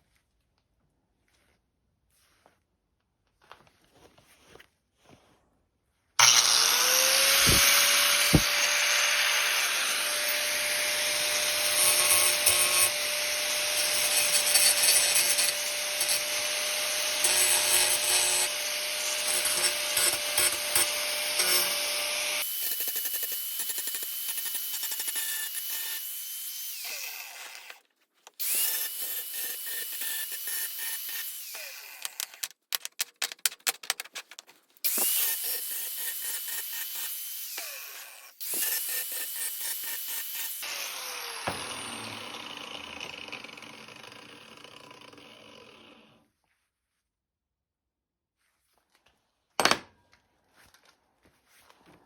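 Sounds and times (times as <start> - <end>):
power tool motor running: 6.2 - 27.8, 34.9 - 46.2.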